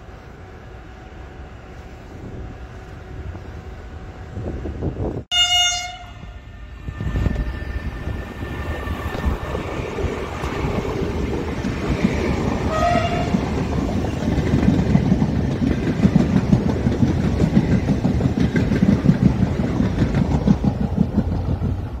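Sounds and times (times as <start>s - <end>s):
train horn: 5.3s - 6.5s, 12.7s - 13.5s
wheels clattering over rail joints: 8.5s - 22.0s.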